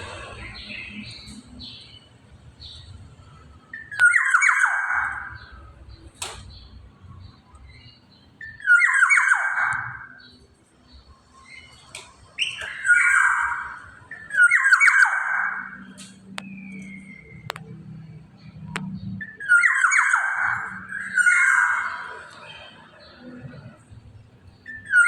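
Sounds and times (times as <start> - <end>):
bird harsh rasping calls: 3.7 - 5.6, 8.4 - 10.3, 12.4 - 15.9, 19.2 - 22.5.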